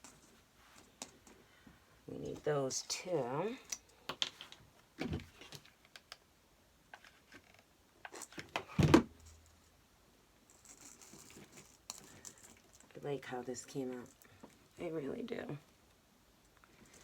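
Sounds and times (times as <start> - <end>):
faint rustle: 10.4 - 17.0.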